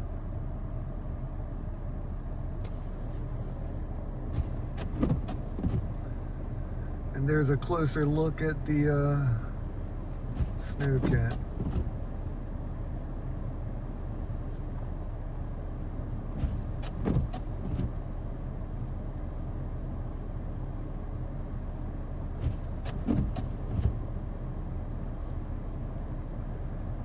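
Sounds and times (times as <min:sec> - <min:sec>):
vehicle engine idling: 0:00.0 - 0:27.0
clunks and creaks: 0:04.3 - 0:06.0, 0:16.3 - 0:18.0, 0:22.3 - 0:24.0.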